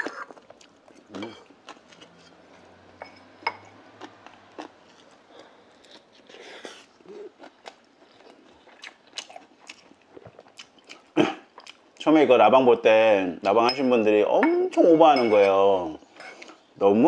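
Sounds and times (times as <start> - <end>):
person chewing: 0.0 - 2.8, 3.6 - 12.0.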